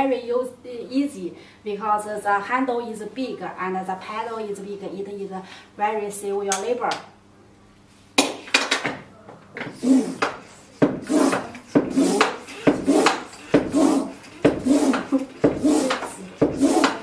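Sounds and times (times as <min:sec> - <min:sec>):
hand pump air rushing: 0:09.6 - 0:17.0
hand pump knocking: 0:10.1 - 0:17.0.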